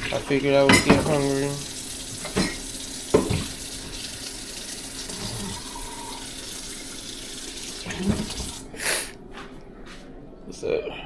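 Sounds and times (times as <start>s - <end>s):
tap running into a sink: 0.0s - 4.2s, 7.6s - 8.6s.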